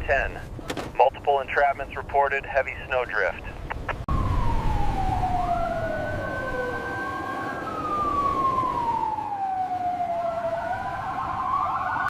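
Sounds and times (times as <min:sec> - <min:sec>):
emergency sirens wailing: 0:00.0 - 0:12.0.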